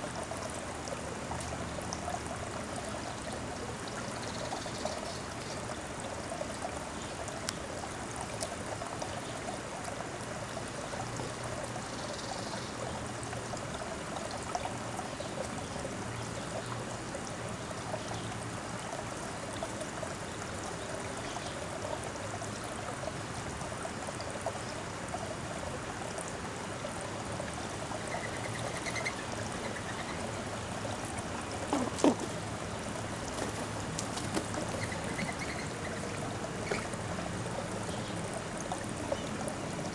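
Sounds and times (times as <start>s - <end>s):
trickling water: 0.0s - 39.9s
faint bird chirps: 28.0s - 30.2s.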